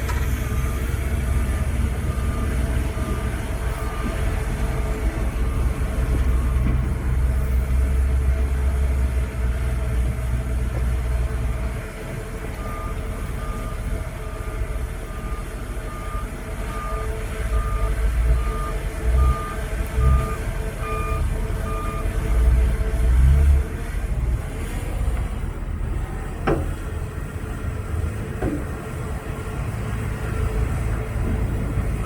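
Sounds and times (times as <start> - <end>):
diesel machinery rumbling: 0.0 - 32.0
reversing alarm beeping: 0.1 - 7.6, 12.6 - 22.2.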